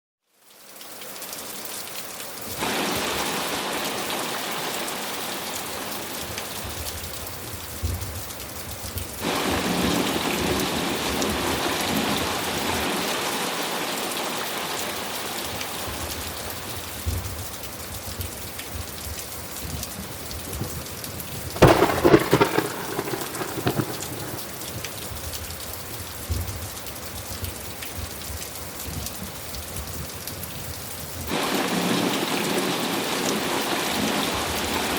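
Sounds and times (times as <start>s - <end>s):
steady rain: 0.2s - 34.9s
sharp crackling thunderclap: 9.2s - 12.8s, 20.4s - 26.7s
rolling thunder: 21.4s - 25.4s.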